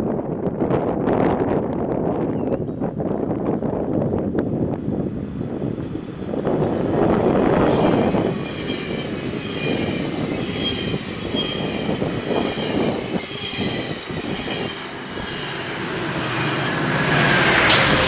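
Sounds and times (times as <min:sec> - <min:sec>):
train wheels rumbling on rail: 0:00.2 - 0:18.0
high-pitched wheel squeals: 0:07.5 - 0:18.0.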